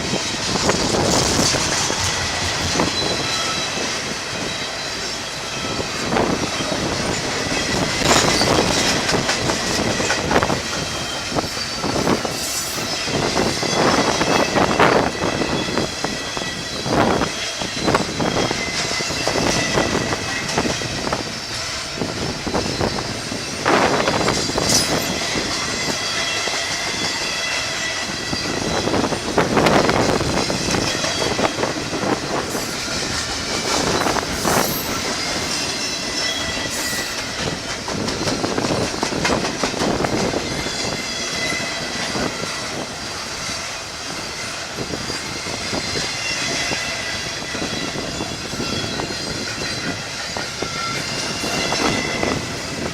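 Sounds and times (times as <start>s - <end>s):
train wheels clicking over rail joints: 0.0s - 52.9s
train wheels squealing: 0.0s - 52.9s.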